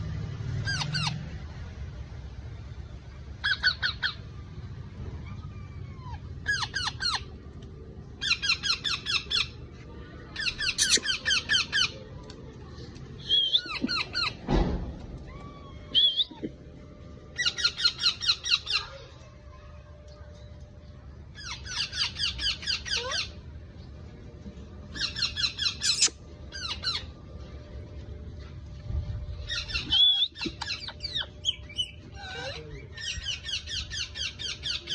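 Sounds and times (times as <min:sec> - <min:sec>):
parrot chicks chirping: 0:03.4 - 0:04.2, 0:05.2 - 0:07.3, 0:10.4 - 0:12.0, 0:13.2 - 0:14.4, 0:24.9 - 0:27.1, 0:29.4 - 0:34.9
parrot squawks: 0:10.4 - 0:11.9, 0:25.0 - 0:27.0.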